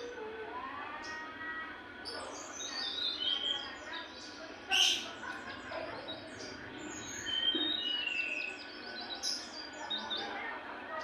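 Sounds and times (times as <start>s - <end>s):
songbird chirping: 2.0s - 10.6s
clear whistled bird notes: 6.9s - 10.1s.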